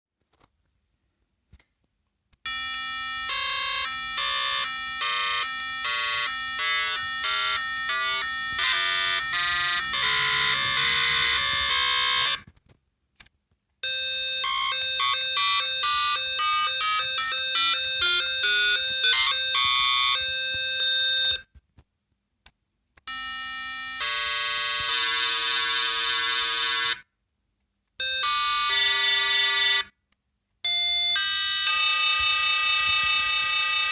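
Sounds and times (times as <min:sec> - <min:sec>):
harsh buzzy electronic tone: 0:02.5 - 0:12.4.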